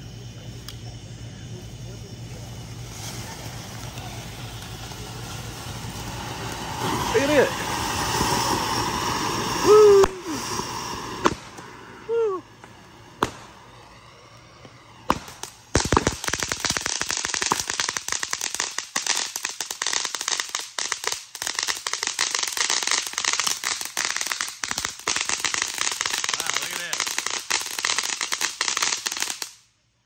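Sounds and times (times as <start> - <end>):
wavering firework tone: 0.0 - 29.6
firework fountain hissing: 0.0 - 30.0
dense rapid crackling: 2.2 - 11.6
sharp pops: 9.6 - 11.8, 12.6 - 13.6, 14.6 - 17.8.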